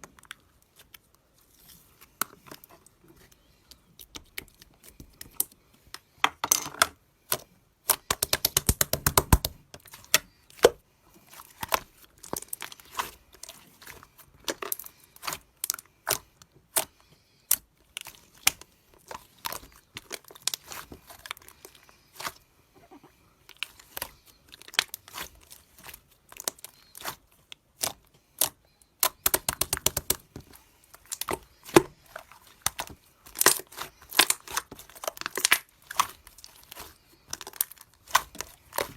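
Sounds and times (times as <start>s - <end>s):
sharp clicks and pops: 7.9s - 9.6s, 28.4s - 30.2s
slime squished by hand: 23.5s - 38.9s.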